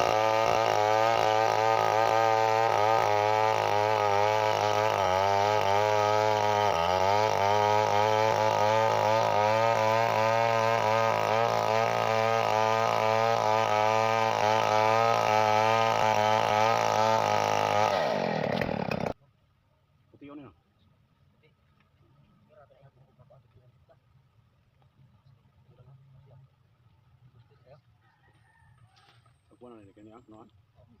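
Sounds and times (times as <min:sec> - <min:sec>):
chainsaw engine running: 0:00.0 - 0:19.2.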